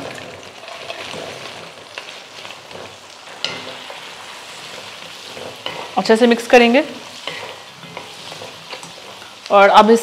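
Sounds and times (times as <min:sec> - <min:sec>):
wooden spatula stirring: 0:00.0 - 0:09.6
sauce sizzling in a wok: 0:00.0 - 0:10.0.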